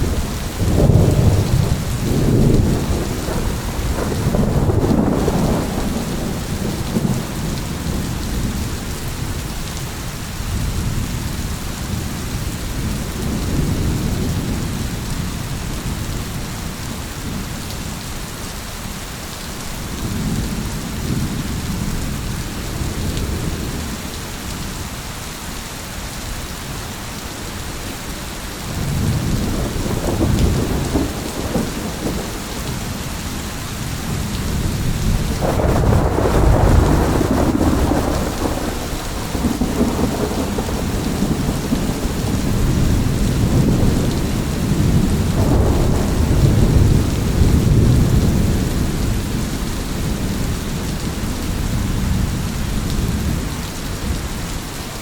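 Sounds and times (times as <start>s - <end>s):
low rolling thunder: 0.0s - 9.6s, 10.5s - 17.7s, 28.6s - 54.6s
steady rain hissing: 0.0s - 55.0s.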